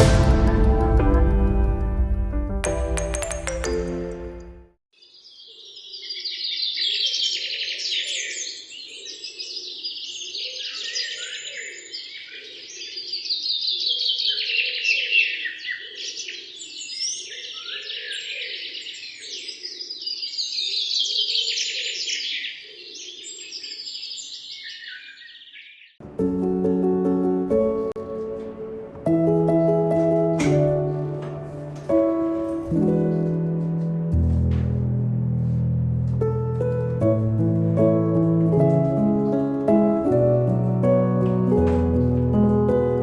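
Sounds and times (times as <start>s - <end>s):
songbirds chirping and trilling: 4.9s - 26.0s.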